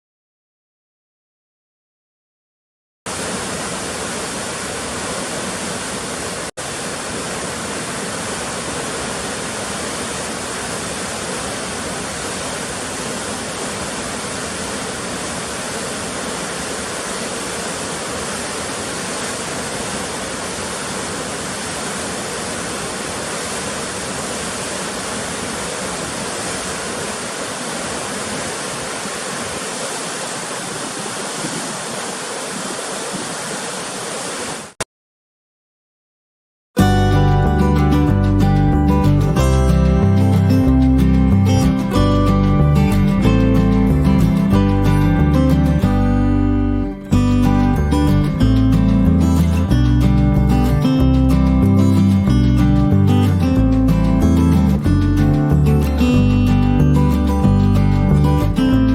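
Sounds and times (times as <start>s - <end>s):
waterfall roaring: 3.1s - 34.8s.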